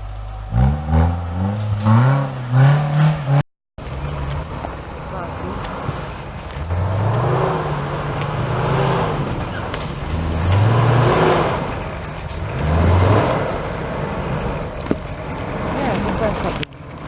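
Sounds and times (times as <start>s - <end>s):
engine revving hard: 0.0s - 16.7s.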